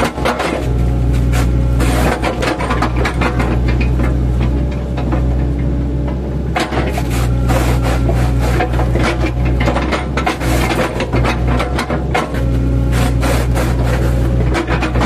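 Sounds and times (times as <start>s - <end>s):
excavator engine running: 0.0s - 15.0s
wood crackling and splintering: 6.6s - 15.0s.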